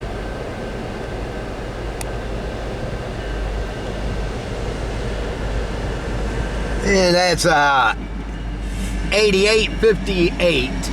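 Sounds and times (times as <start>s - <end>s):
faint steady whine: 0.0s - 8.5s
diesel locomotives rumbling past: 0.0s - 10.9s.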